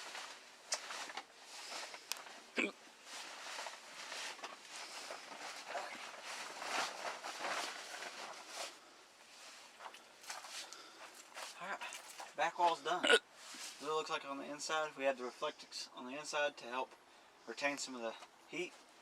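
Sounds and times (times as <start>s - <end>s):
rustling movement: 0.0s - 12.4s.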